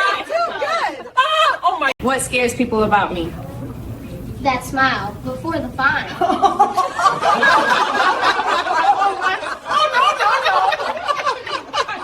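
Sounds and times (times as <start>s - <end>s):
people laughing: 0.0s - 1.9s, 5.8s - 12.0s.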